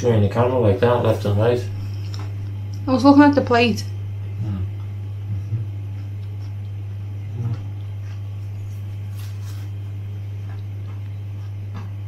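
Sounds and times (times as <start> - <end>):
steady low hum: 0.0 - 12.0
man chewing food: 1.8 - 2.8, 4.2 - 12.0
soft murmurs: 7.2 - 7.7.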